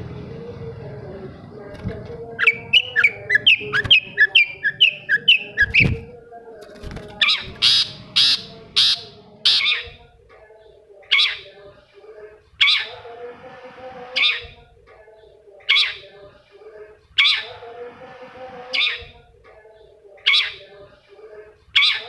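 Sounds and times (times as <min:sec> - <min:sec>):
bird harsh rasping calls: 0:02.4 - 0:06.0, 0:07.2 - 0:09.9, 0:11.1 - 0:11.5.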